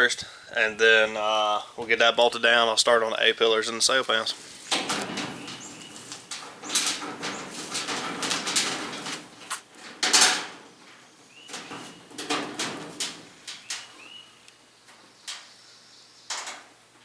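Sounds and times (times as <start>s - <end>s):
scraping on sheet metal: 4.3s - 13.9s.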